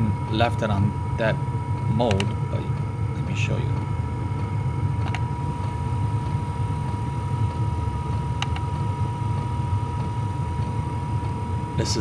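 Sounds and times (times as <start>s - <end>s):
heater fan hum: 0.0s - 12.0s
thin steady whine: 0.0s - 12.0s
sharp click: 8.4s - 8.7s.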